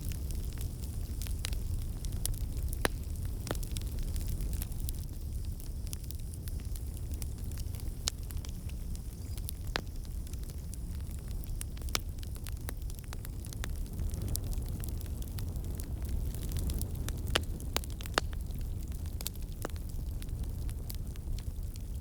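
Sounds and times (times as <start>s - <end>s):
fire crackling in a fireplace: 0.0s - 22.0s
sharp fire pops: 11.8s - 21.9s.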